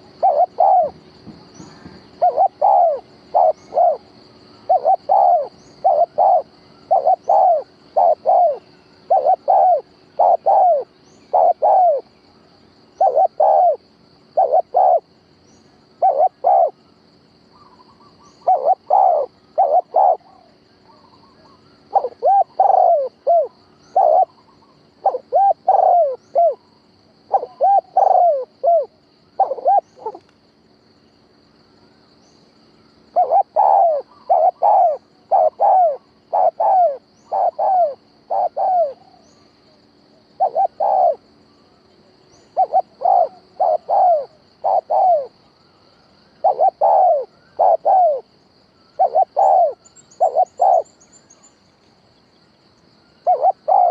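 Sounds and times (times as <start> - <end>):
dove cooing: 0.0 - 12.1, 13.0 - 13.8, 14.4 - 15.1, 16.0 - 16.8, 17.5 - 26.7, 27.3 - 30.3, 33.1 - 39.5, 40.2 - 41.2, 42.4 - 45.4, 46.4 - 48.3, 48.9 - 50.9, 53.2 - 53.9.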